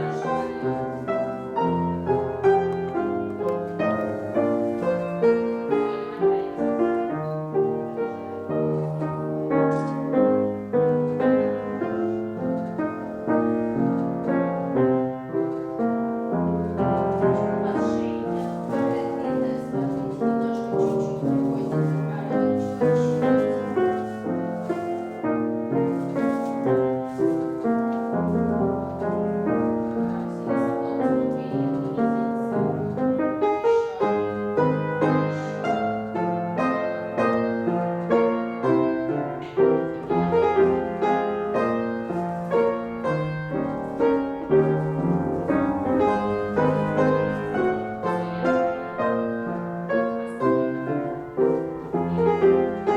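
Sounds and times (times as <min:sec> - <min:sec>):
piano accompaniment: 0:00.0 - 0:52.9.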